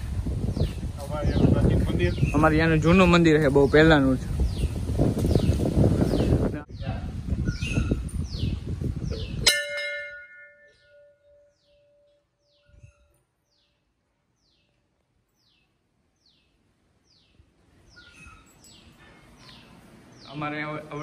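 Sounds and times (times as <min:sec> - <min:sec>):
bird chirping: 0:00.5 - 0:02.8, 0:03.5 - 0:09.7, 0:10.4 - 0:21.0
temple bell ringing: 0:09.2 - 0:12.3.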